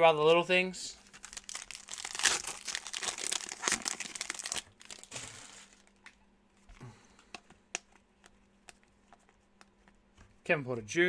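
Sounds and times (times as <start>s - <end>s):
plastic wrapper crinkling: 1.0s - 6.2s.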